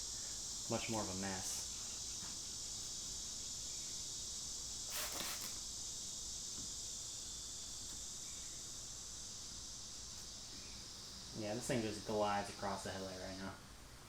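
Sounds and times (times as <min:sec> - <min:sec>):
crickets chirping: 0:00.0 - 0:14.0
short hiss: 0:04.6 - 0:08.5.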